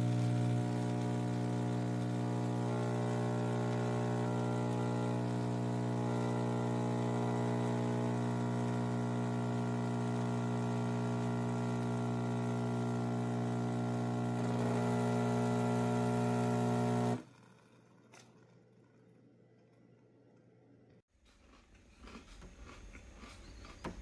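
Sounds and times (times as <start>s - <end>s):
espresso machine pump humming: 0.0s - 17.2s.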